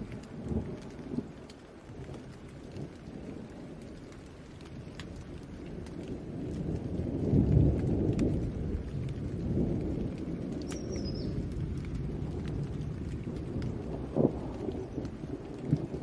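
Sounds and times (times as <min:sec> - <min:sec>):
low rumble of thunder: 0:00.0 - 0:16.0
sharp raindrop ticks: 0:00.0 - 0:16.0
steady rain: 0:00.0 - 0:16.0.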